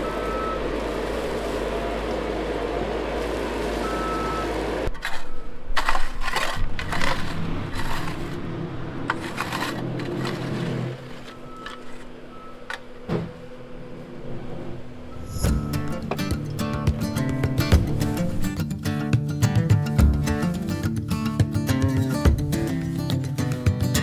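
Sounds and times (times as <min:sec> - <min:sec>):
low steady hum: 0:00.0 - 0:18.5
vehicle engine rumble: 0:00.0 - 0:18.8.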